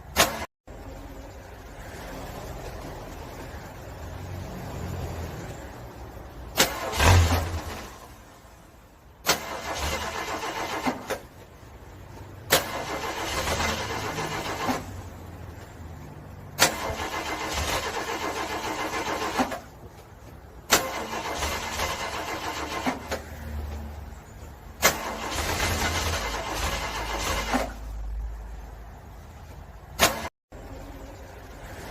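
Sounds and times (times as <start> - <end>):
car engine cranking: 6.2 - 8.3, 9.2 - 11.7, 12.4 - 15.2, 16.5 - 23.4, 24.4 - 28.0.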